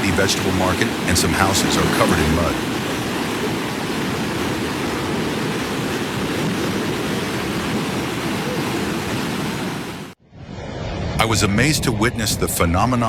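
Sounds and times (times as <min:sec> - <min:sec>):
floodwater rushing: 0:00.0 - 0:10.2.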